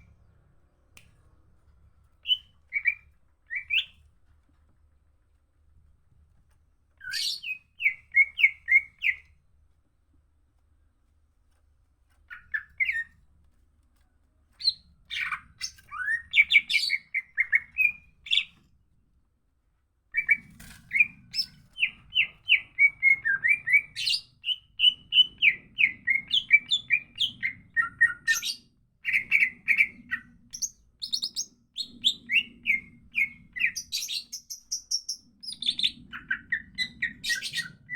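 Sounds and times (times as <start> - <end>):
bird singing: 20.2 - 37.9.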